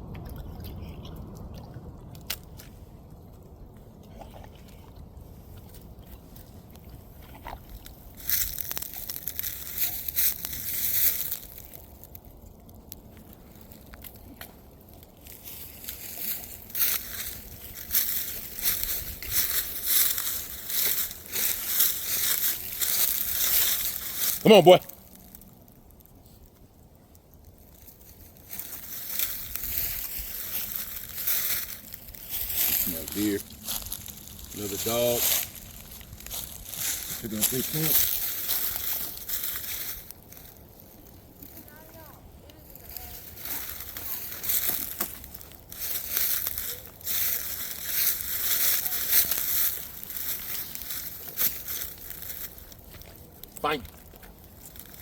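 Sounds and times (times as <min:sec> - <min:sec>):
puppy lapping water: 0:00.0 - 0:02.3, 0:03.7 - 0:07.8
footsteps crunching dry leaves: 0:07.7 - 0:26.1, 0:27.1 - 0:55.0.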